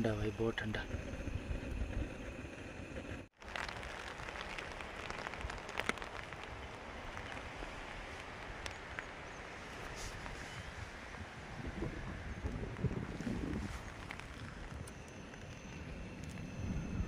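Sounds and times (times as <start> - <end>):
steady rain falling: 3.4 - 10.4.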